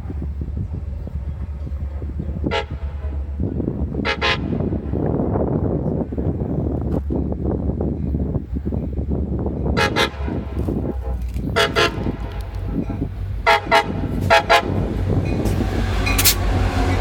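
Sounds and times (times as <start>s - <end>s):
steady low rumble: 0.0s - 17.0s
train horn short toots: 2.4s - 3.2s, 4.0s - 4.7s, 9.8s - 17.0s.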